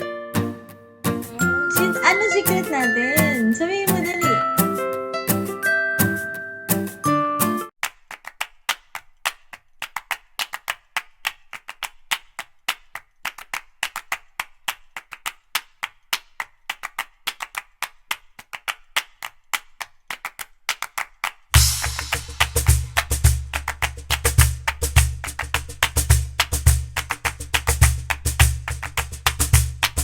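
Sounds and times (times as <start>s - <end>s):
tune playing: 1.2s - 7.7s.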